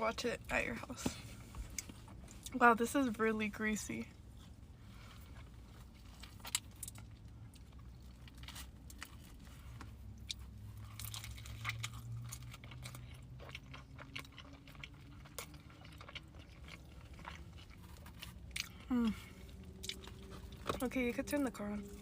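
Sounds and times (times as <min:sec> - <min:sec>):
chewing and biting pizza: 0:04.2 - 0:20.9.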